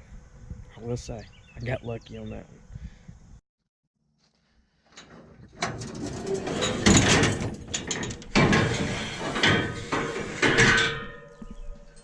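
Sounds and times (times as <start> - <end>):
ladder rattling: 4.9 - 11.4
boots clanking on metal ladder: 6.7 - 12.0.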